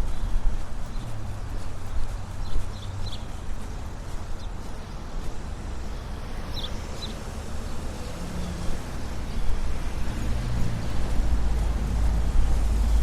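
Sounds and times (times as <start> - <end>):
low traffic rumble: 0.0 - 13.0
quick footsteps on pavement: 0.0 - 13.0.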